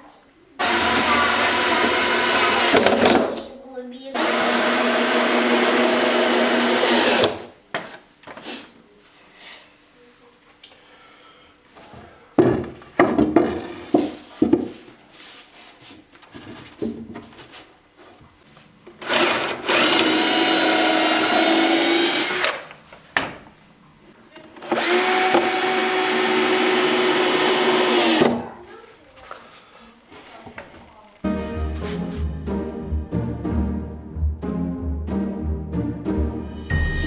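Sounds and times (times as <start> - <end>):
electric drill running: 0.6 - 3.2, 4.2 - 7.5, 19.0 - 22.7, 24.6 - 28.4.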